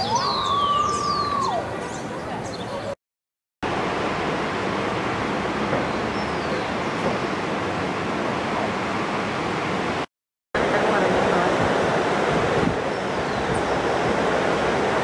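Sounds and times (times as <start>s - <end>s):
rushing water: 3.6s - 15.0s.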